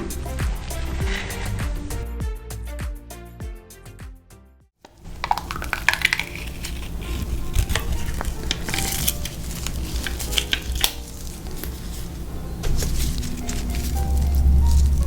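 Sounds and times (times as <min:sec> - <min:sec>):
crunching crispy fried food: 0:05.0 - 0:12.1, 0:12.8 - 0:15.0.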